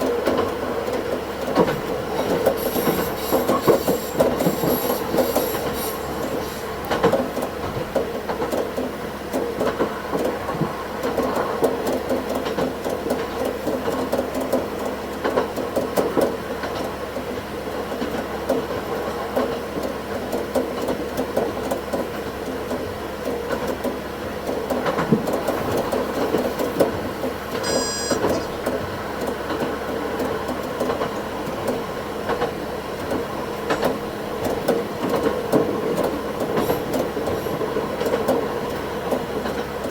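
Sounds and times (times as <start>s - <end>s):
railcar running rumble: 0.0s - 39.9s
wheels clattering over rails: 0.0s - 39.9s
brief high tone: 27.6s - 28.6s.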